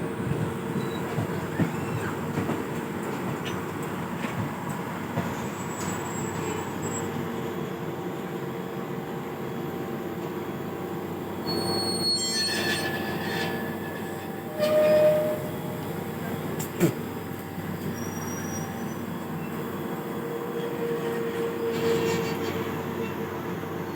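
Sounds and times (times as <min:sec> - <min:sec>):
train rumbling on rails: 0:00.0 - 0:23.9
high-pitched wheel squeals: 0:11.5 - 0:15.8, 0:17.9 - 0:19.5.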